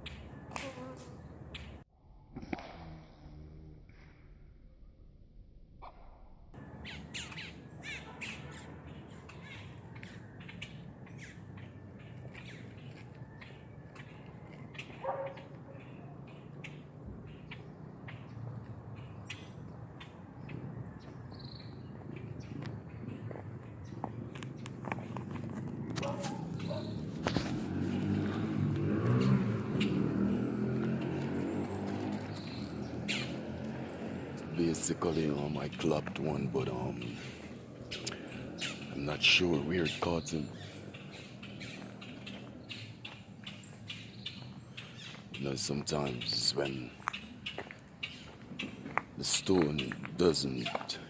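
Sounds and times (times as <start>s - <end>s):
vehicle engine passing: 6.6s - 51.0s
flock of birds calling: 6.8s - 18.4s, 29.4s - 51.0s.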